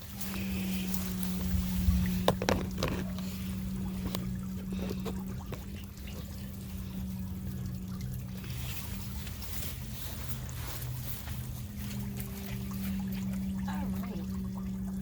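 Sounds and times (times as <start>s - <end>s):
steady low hum: 0.0s - 15.0s
water trickling: 0.0s - 15.0s.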